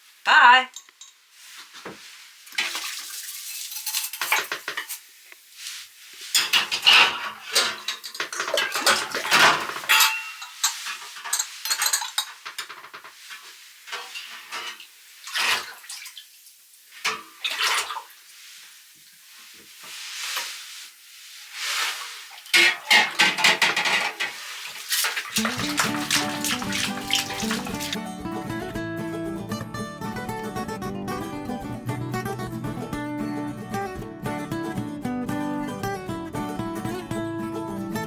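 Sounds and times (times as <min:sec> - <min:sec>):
dishes and cutlery clattering: 0:02.6 - 0:05.0, 0:06.3 - 0:15.7, 0:22.5 - 0:28.0.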